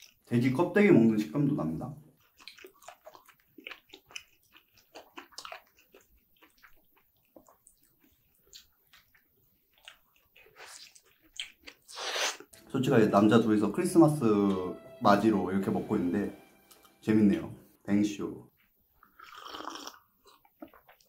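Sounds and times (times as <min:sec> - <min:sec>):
wet chewing and mouth clicks: 0:00.0 - 0:00.3, 0:02.1 - 0:12.6, 0:19.0 - 0:21.0.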